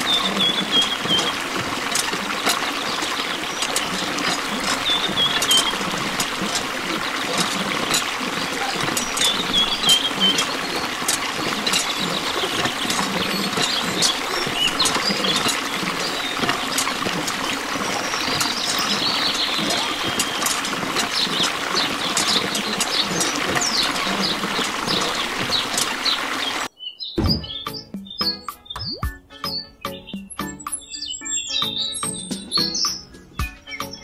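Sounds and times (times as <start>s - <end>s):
water stream splashing into pool: 0.0s - 26.7s
droplet plinks: 28.3s - 29.2s.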